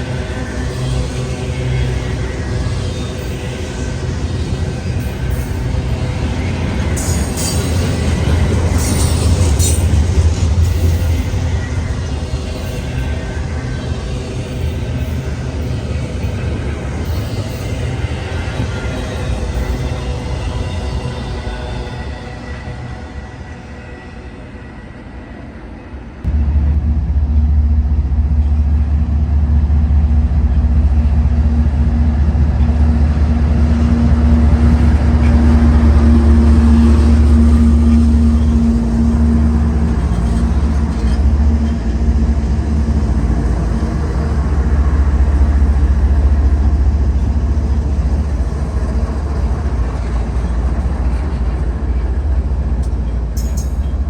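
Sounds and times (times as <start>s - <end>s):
train rumbling past: 0.0s - 54.0s
steady hum: 26.2s - 50.5s.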